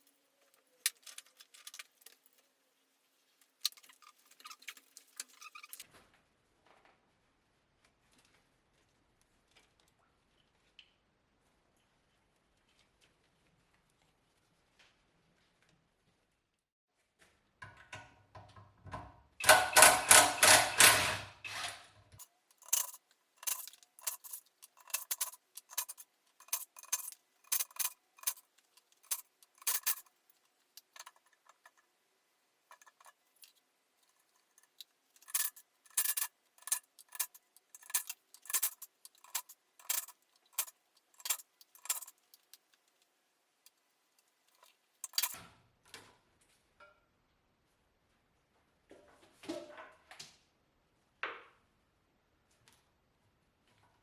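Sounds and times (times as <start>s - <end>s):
sharp metallic clicks: 19.4s - 21.2s
metallic rattle of hand tools: 19.4s - 30.2s, 30.8s - 31.8s, 32.7s - 42.6s, 44.5s - 45.4s.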